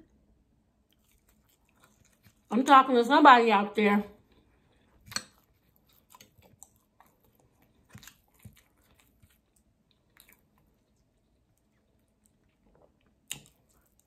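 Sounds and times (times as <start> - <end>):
person chewing: 0.8 - 2.5, 4.2 - 14.0.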